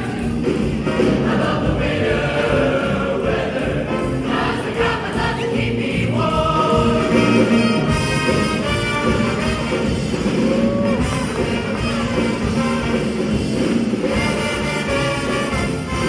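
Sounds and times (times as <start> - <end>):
choir singing a christmas song: 0.0 - 9.8.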